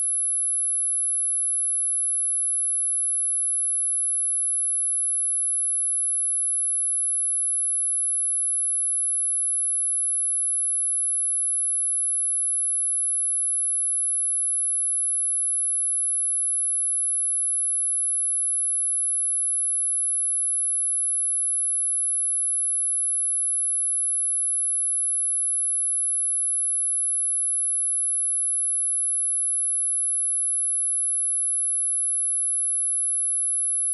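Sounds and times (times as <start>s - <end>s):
high-pitched sine tone: 0.0s - 33.9s.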